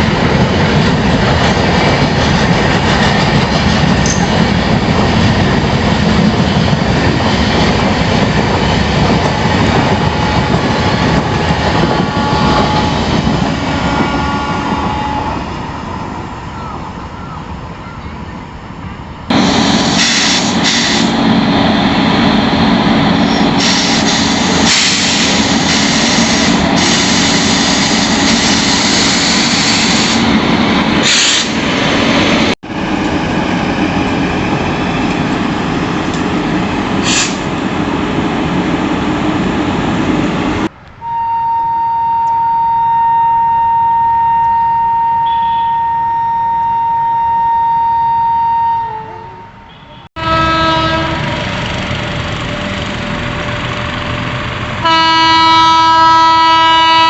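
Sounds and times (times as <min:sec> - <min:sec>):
locomotive horn: 0:10.9 - 0:15.5, 0:41.0 - 0:51.6, 0:54.8 - 0:57.0
train wheels rushing past: 0:19.3 - 0:40.8, 0:50.2 - 0:57.0.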